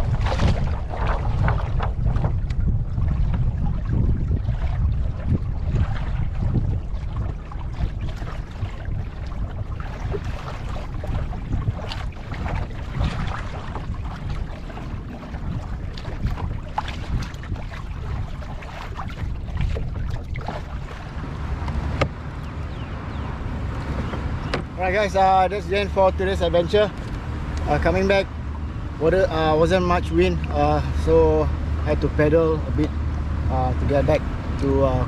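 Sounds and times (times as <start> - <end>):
water lapping against kayak hull: 0.0 - 35.0
wind rumbling on microphone: 0.0 - 35.0.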